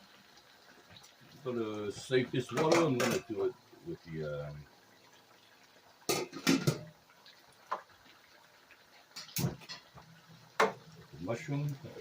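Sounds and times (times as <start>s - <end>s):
kitchen pots and utensils clattering: 2.5s - 3.4s, 6.1s - 6.9s, 9.1s - 10.0s, 10.6s - 10.9s.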